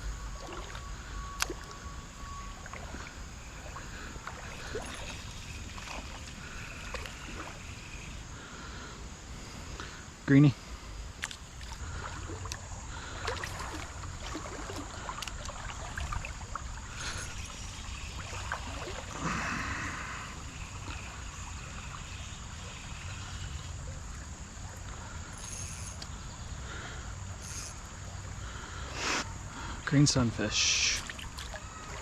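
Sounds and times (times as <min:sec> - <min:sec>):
creek water splashing: 0:00.4 - 0:01.8, 0:02.5 - 0:07.7, 0:11.1 - 0:25.0, 0:29.6 - 0:32.0
fishing reel clicks: 0:25.3 - 0:26.1, 0:27.4 - 0:27.8.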